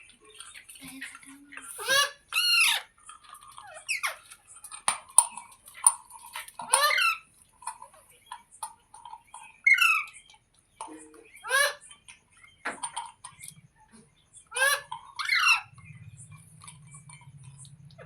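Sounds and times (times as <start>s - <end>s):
soft clicks and chatter: 0.0s - 18.0s
parakeet squawking: 1.0s - 3.0s, 3.6s - 4.3s, 6.6s - 7.3s, 11.2s - 12.0s, 14.5s - 18.0s.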